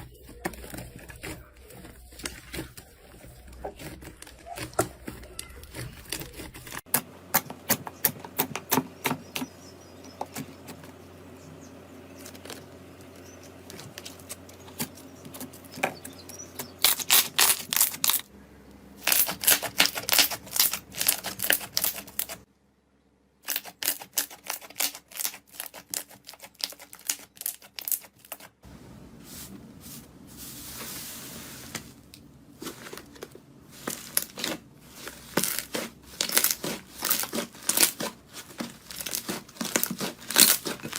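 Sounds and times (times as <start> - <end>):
crunchy slime being crushed: 16.6 - 18.3, 19.0 - 22.4, 23.4 - 28.4, 33.8 - 40.9.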